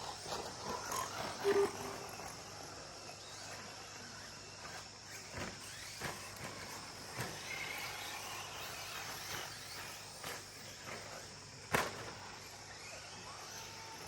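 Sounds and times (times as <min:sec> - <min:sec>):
electric motor whine: 0:00.4 - 0:04.6
high-pitched background drone: 0:01.3 - 0:02.5.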